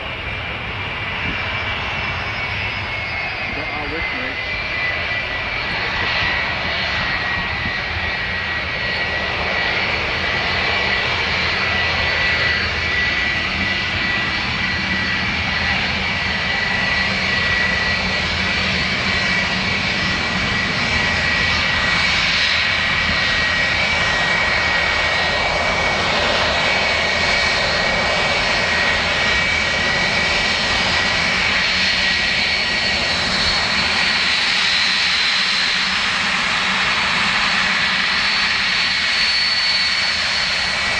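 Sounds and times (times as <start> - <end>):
airliner engines running: 0.0 - 40.9.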